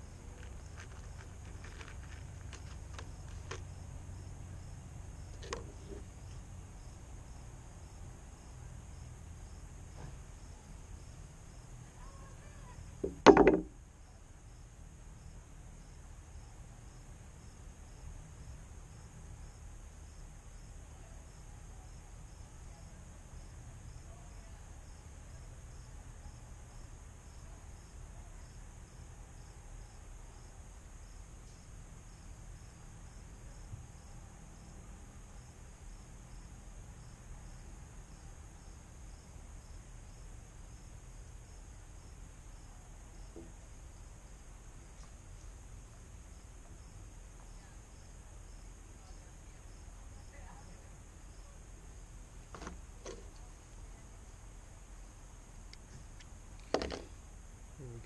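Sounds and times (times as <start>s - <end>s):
insects chirping: 0.0s - 58.0s
loud short knock: 13.0s - 13.7s.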